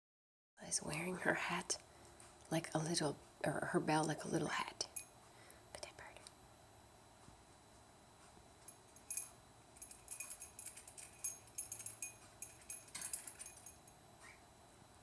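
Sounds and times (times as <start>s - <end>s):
small metal bell jingling: 4.9s - 5.1s, 8.6s - 14.0s.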